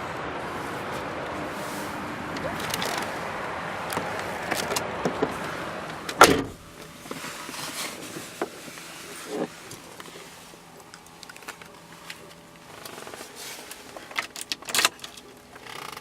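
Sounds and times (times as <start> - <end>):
car door shutting with thud: 6.1 - 6.7.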